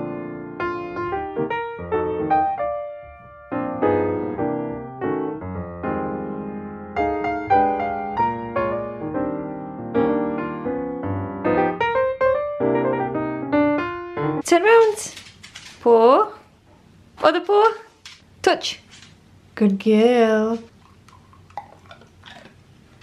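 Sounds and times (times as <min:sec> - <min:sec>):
gentle piano music: 0:00.0 - 0:14.4.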